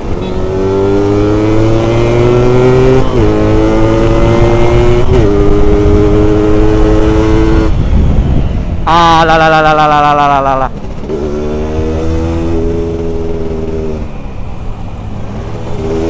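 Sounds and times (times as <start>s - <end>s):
motorcycle engine accelerating: 0.0s - 8.4s, 9.6s - 14.1s, 15.3s - 16.0s.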